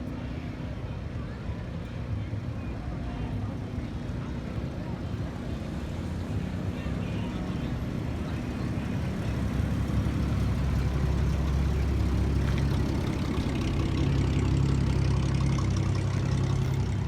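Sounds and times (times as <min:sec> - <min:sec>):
car engine running at low revs: 0:03.6 - 0:17.0.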